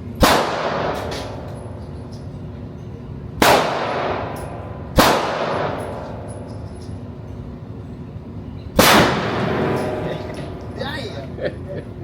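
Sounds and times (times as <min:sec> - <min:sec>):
gunshots with echo: 0:00.2 - 0:01.1, 0:03.4 - 0:04.4, 0:05.0 - 0:05.8, 0:08.8 - 0:10.1.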